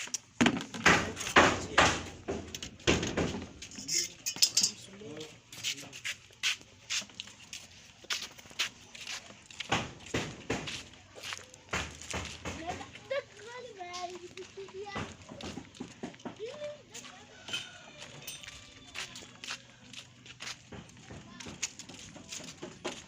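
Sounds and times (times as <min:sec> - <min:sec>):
hard objects knocking and clattering: 0:00.2 - 0:04.8.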